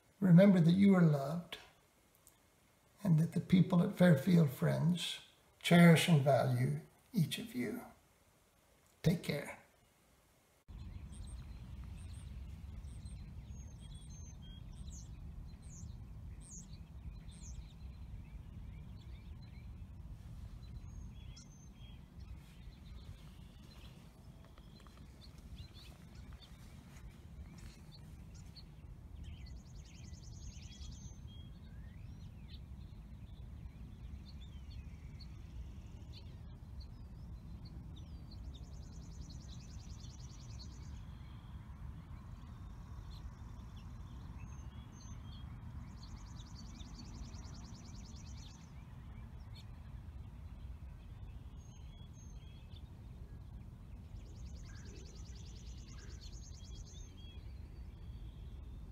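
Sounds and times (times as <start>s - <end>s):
birds chirping: 0.0s - 58.9s
steady low rumble: 10.6s - 39.5s.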